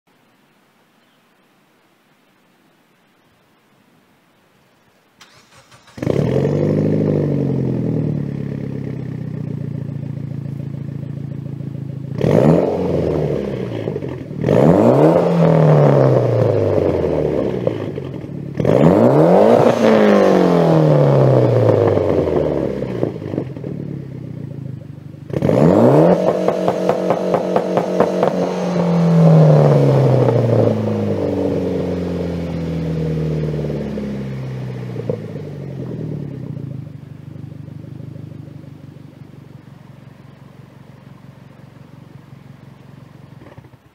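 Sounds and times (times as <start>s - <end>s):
car engine idling and revving: 5.2s - 43.9s
car engine starting: 5.2s - 43.9s.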